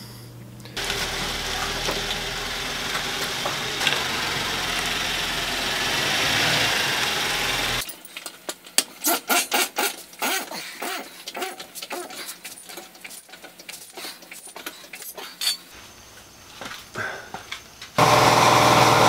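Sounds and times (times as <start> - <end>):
car engine idling: 0.8 - 7.8.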